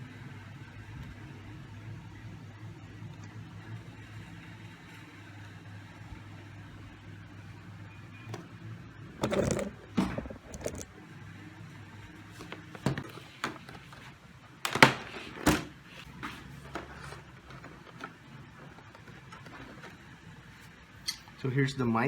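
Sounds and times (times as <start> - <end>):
packaging rustling and scraping: 9.2 - 10.9, 12.3 - 20.7.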